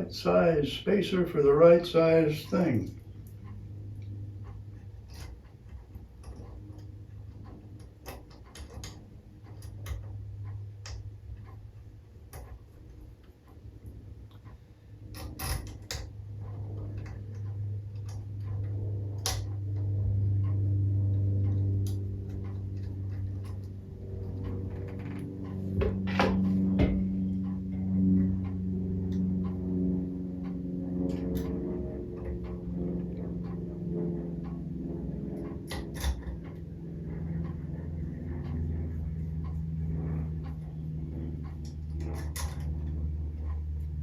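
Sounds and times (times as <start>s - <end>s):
low hum: 0.0s - 44.0s.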